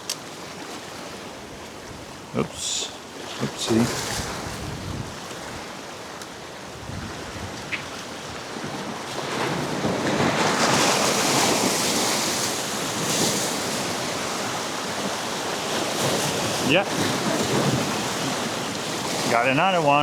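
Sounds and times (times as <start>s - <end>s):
sea surf washing against rocks: 0.0s - 20.0s
wind buffeting microphone: 3.7s - 19.4s.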